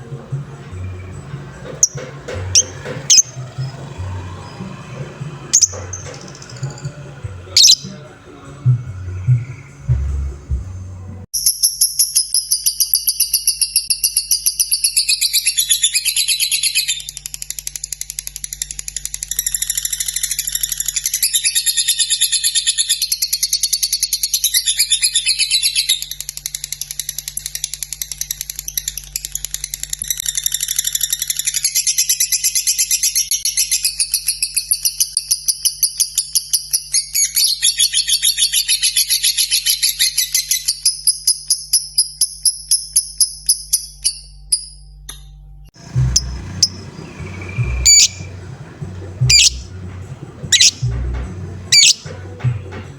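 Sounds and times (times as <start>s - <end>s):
lovebird chattering trill: 1.8s - 3.8s, 5.5s - 6.9s, 7.6s - 8.0s, 45.8s - 52.2s.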